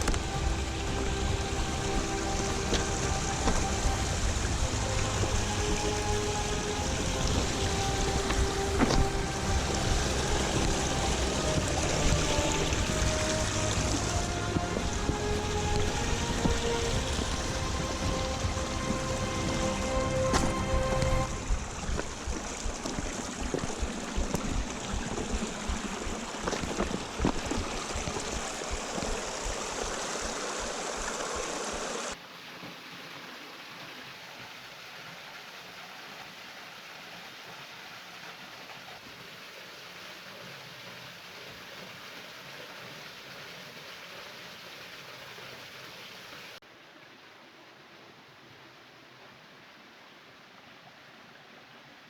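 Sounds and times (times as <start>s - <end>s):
low bumps: 0.0s - 31.9s
rushing stream water: 0.0s - 52.0s.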